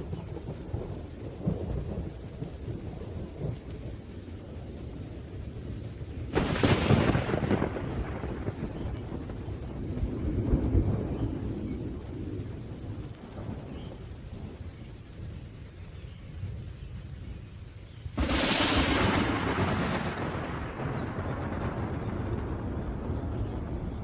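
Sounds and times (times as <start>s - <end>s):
rolling thunder: 0.0s - 15.5s, 18.1s - 24.0s
steady rain: 0.0s - 24.0s
sharp thunderclap: 6.3s - 13.8s, 18.2s - 24.0s.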